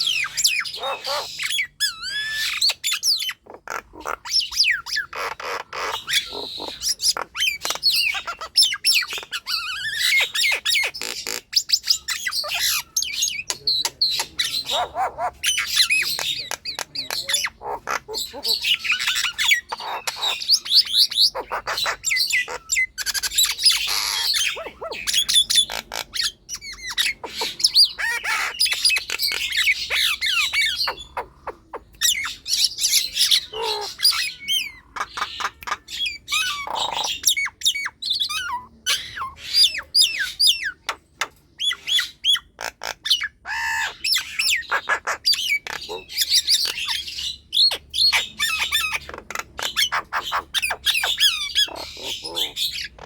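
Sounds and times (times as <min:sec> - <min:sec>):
myna squawking and whistling: 0:00.0 - 0:41.0.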